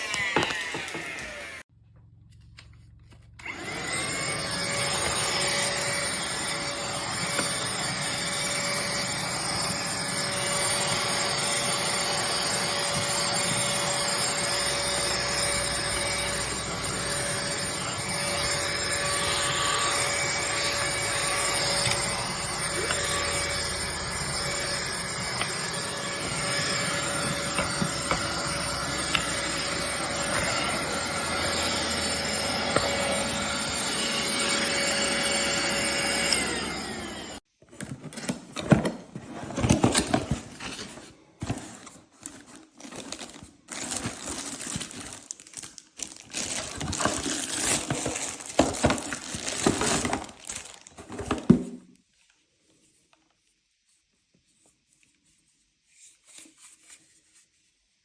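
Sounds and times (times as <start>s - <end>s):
handheld vacuum cleaner running: 0.0s - 1.7s, 3.4s - 37.5s, 46.2s - 51.7s.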